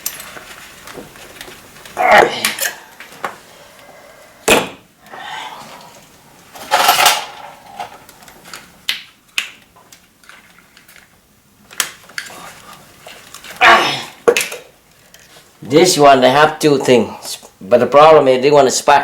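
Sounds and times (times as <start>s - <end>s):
tools and engine parts clanking: 6.5s - 8.0s
metal rattle: 6.6s - 7.9s.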